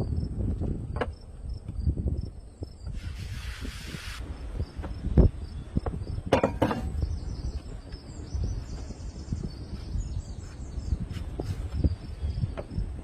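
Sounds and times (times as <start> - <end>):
clatter of knocks: 6.3 - 7.0.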